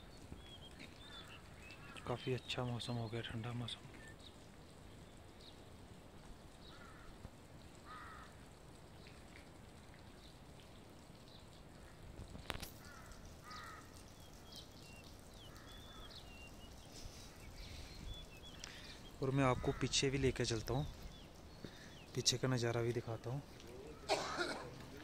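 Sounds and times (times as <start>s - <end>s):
short bird calls: 12.7s - 20.0s.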